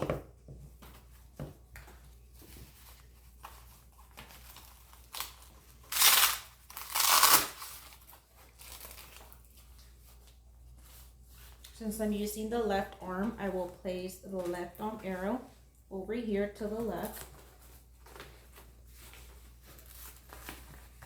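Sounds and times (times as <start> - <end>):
velcro rasping: 4.5 - 8.1
fabric rustling: 16.8 - 21.0.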